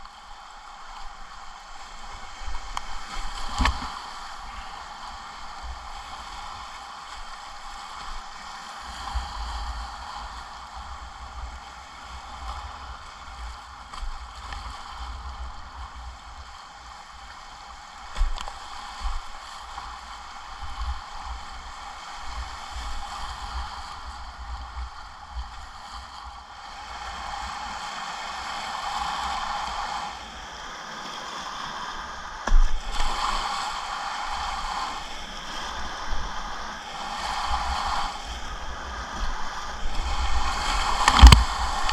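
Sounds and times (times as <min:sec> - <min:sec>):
low thuds on microphone: 0:03.5 - 0:03.9, 0:41.0 - 0:41.9
whitewater rushing: 0:33.0 - 0:41.9.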